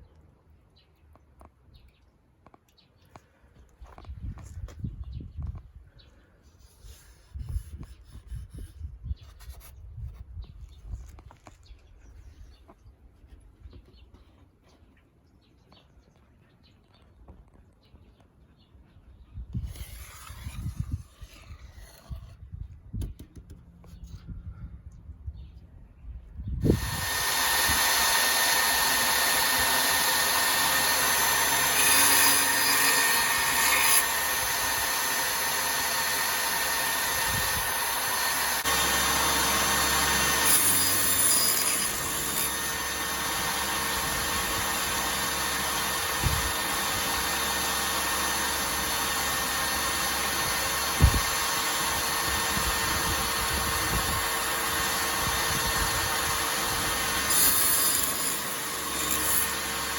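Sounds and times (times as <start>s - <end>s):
table saw cutting wood: 19.5s - 22.4s, 26.6s - 59.9s.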